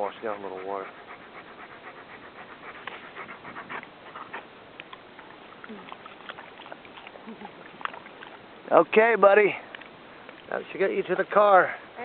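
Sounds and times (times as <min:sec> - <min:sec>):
dog panting: 0:00.0 - 0:08.5.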